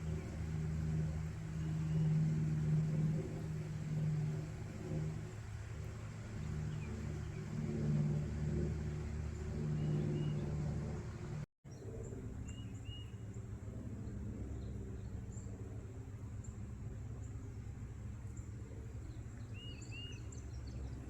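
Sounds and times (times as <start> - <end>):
vehicle engine humming: 0.0 - 12.1
birds chirping: 0.0 - 13.4, 16.4 - 21.0
low outdoor rumble: 0.0 - 21.0.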